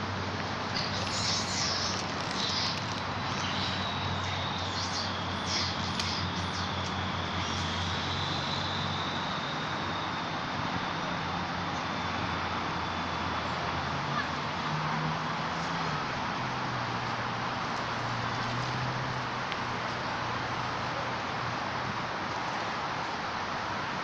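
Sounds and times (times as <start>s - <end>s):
steady rush: 0.0s - 13.3s
low hum: 0.0s - 14.0s
high-pitched chirps: 0.7s - 10.8s.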